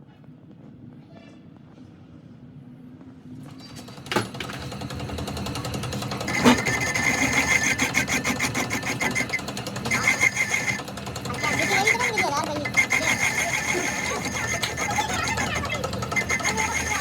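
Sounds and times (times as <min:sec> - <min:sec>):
power tool fast chatter: 0:04.1 - 0:17.0.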